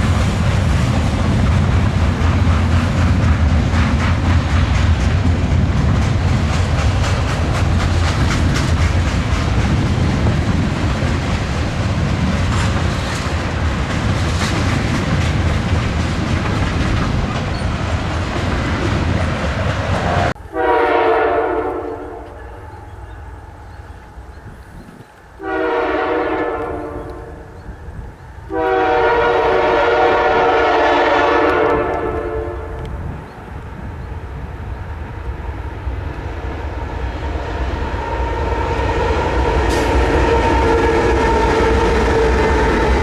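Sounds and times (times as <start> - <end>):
train rumble and engine drone: 0.0 - 43.0
locomotive air horn blasts: 20.0 - 22.8, 25.4 - 27.6, 28.5 - 33.0, 38.0 - 43.0.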